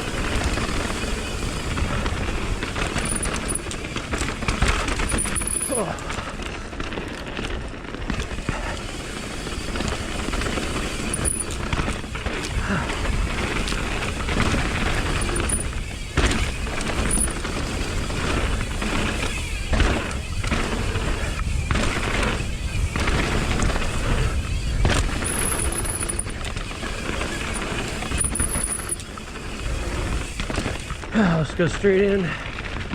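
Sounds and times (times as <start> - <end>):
bike rattling over bumps: 0.0 - 32.9
tyres rolling on dirt: 0.0 - 32.9.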